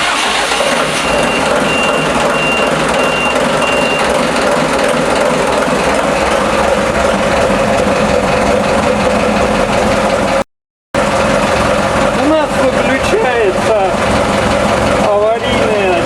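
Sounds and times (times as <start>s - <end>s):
marine diesel engine running: 0.0s - 16.0s
alarm beeping: 0.9s - 4.2s.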